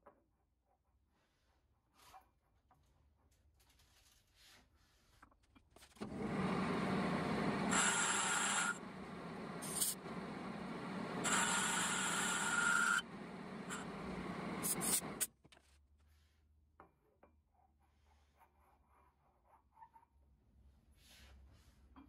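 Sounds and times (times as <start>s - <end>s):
machine tool running: 6.0s - 15.3s
high-pitched cutting whine: 6.2s - 15.3s.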